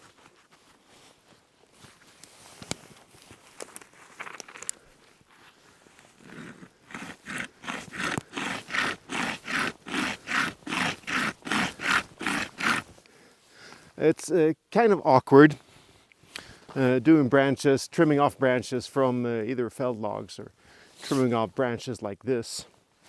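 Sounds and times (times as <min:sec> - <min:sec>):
chain saw rasping through branch: 0:06.2 - 0:13.0.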